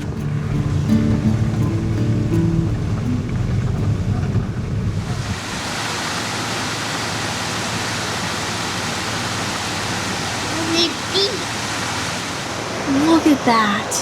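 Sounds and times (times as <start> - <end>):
music: 0.0 - 4.5
low rumble: 0.0 - 5.6
fast-flowing floodwater rushing: 0.0 - 14.0.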